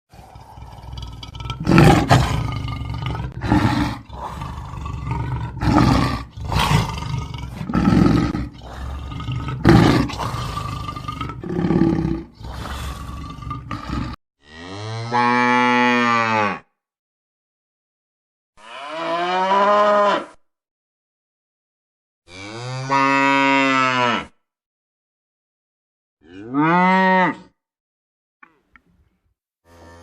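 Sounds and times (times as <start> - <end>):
big cat roaring and grunting: 0.1 - 16.6.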